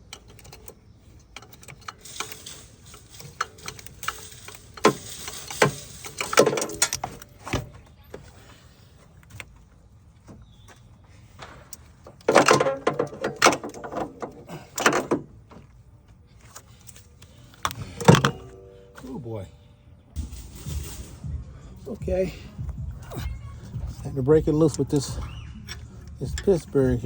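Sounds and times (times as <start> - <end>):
wrench clanking on metal bolt: 0.0 - 7.7, 12.1 - 15.6, 17.6 - 19.0.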